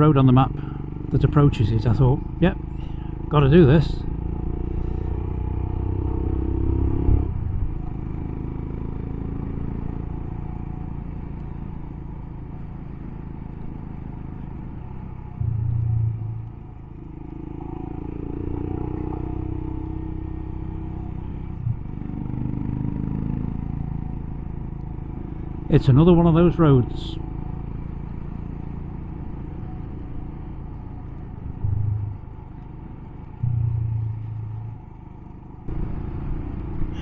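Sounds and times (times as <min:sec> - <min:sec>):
motorcycle engine revving: 0:00.0 - 0:37.0
low thump: 0:15.4 - 0:16.7, 0:31.4 - 0:32.4, 0:33.4 - 0:34.8.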